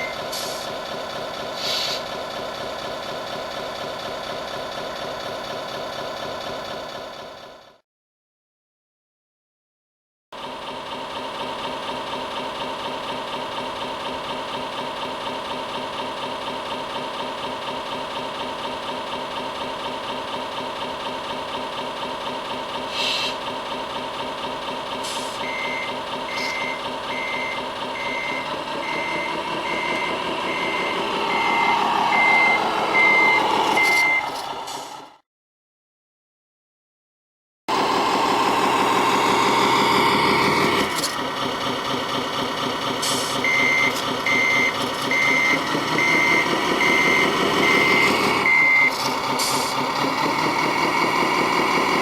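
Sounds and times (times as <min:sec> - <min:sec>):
reversing beeps: 0:00.0 - 0:00.3, 0:25.4 - 0:34.4, 0:43.4 - 0:49.0
model truck engine sound: 0:00.0 - 0:07.8, 0:10.4 - 0:35.2, 0:37.7 - 0:52.0
short hisses: 0:01.6 - 0:02.0, 0:22.9 - 0:23.4.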